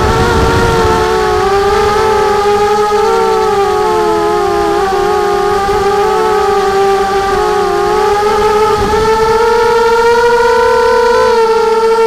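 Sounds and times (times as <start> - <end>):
quadcopter propellers humming: 0.0 - 12.0.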